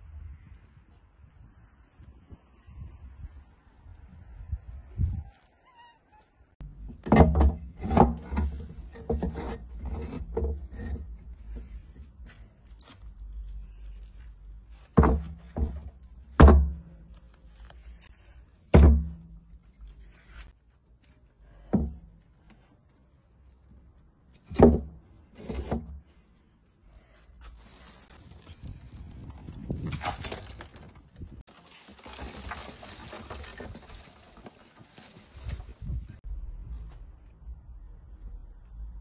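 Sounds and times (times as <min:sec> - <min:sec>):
thuds: 0:14.8 - 0:17.0, 0:18.7 - 0:19.4.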